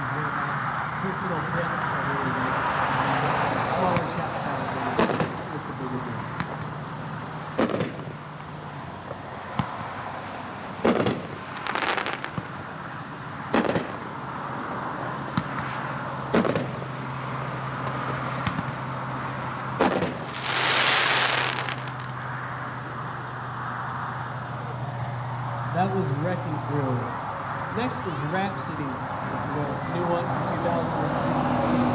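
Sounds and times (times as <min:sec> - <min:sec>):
rushing firework burst: 0:03.3 - 0:06.6, 0:10.8 - 0:12.6, 0:19.8 - 0:22.3
firework crackling: 0:03.3 - 0:08.6, 0:09.4 - 0:14.4, 0:15.4 - 0:22.8
firework shells bursting: 0:10.8 - 0:12.6, 0:19.8 - 0:22.3.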